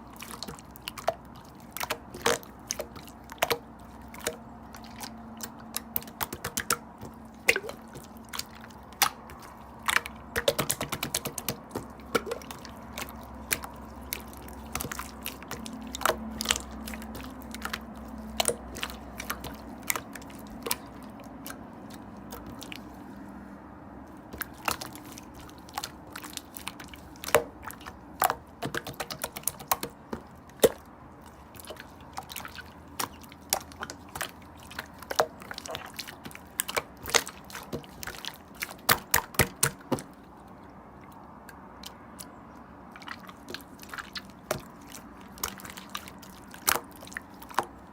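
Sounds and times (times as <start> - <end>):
slime clicking and popping: 1.8 - 21.6, 24.3 - 30.8.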